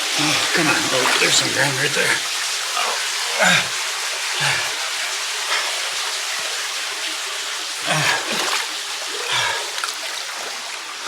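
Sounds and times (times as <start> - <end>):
water rushing: 0.0 - 11.0
person grunting or gasping: 0.2 - 2.2, 2.8 - 3.8, 4.4 - 4.8, 7.8 - 8.5, 9.2 - 9.8
person splashing through water: 0.2 - 2.2, 7.8 - 10.6.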